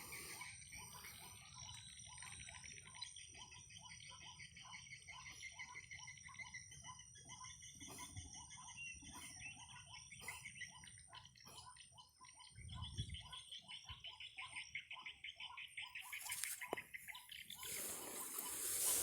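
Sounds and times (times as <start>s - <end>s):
rustling: 16.1s - 16.7s, 17.6s - 19.0s
waterhen call: 17.5s - 19.0s.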